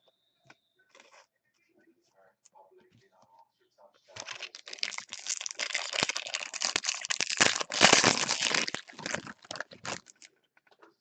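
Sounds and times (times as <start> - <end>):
foil wrapper crinkling: 4.2 - 10.3.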